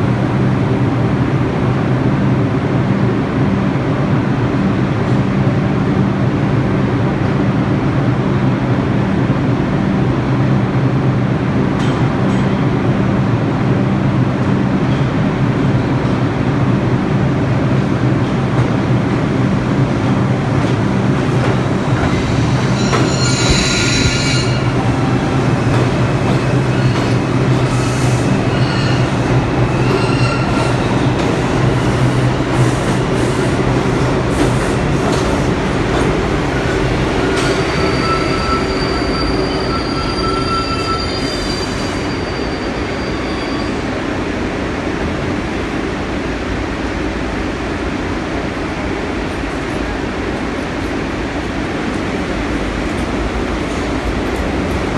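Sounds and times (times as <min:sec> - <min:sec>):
subway train wheels rumbling: 0:00.0 - 0:54.9
wheels squealing: 0:22.1 - 0:25.1.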